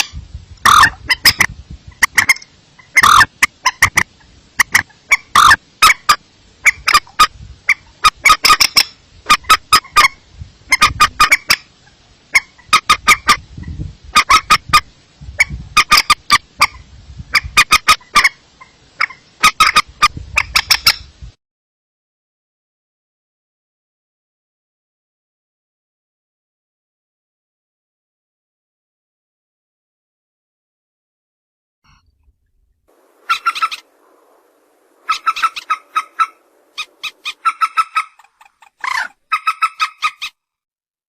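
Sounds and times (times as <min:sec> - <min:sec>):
waterbird call bursts: 0:32.9 - 0:40.3.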